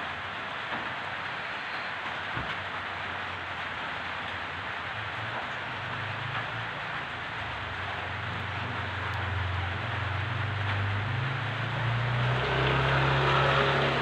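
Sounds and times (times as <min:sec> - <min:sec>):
vehicle engine hum: 0:00.0 - 0:14.0.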